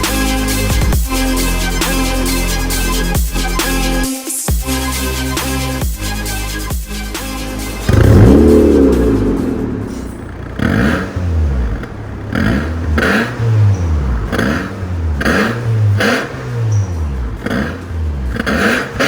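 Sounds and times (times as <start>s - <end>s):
car engine revving: 5.2s - 19.0s
quick throttle blips: 7.6s - 19.0s.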